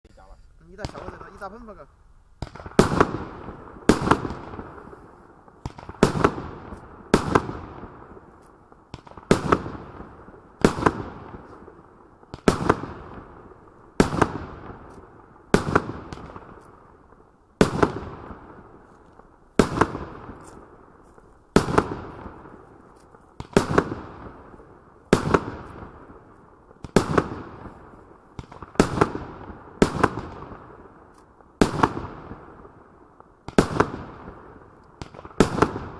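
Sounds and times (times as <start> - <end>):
fireworks bangs: 0.2 - 35.9.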